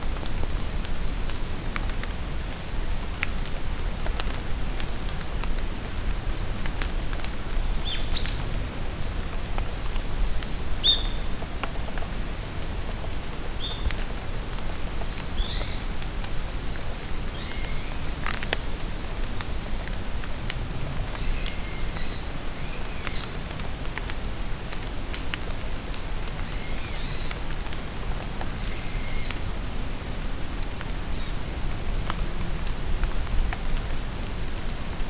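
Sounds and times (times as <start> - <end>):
rain falling in forest: 0.0 - 35.0
songbirds singing: 9.7 - 12.6, 13.6 - 19.2.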